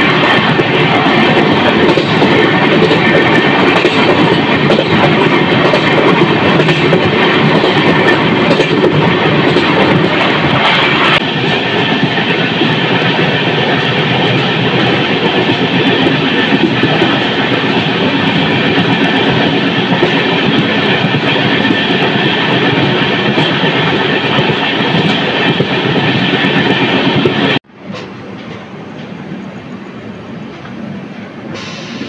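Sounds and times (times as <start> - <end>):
train wheels rumbling on track: 0.0 - 32.0.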